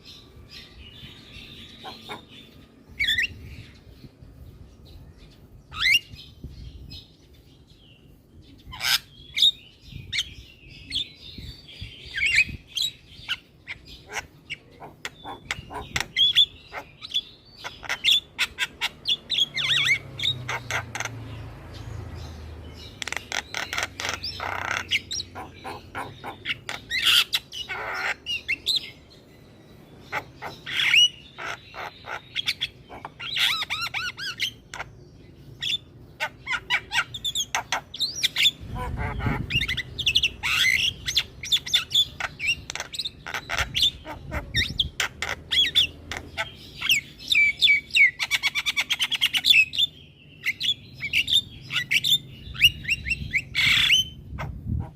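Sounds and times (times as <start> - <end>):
bird singing with clicks and whistles: 22.2 - 54.6.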